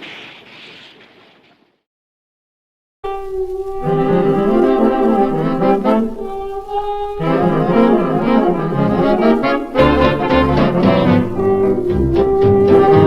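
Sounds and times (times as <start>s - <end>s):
brass band music: 3.1s - 13.0s.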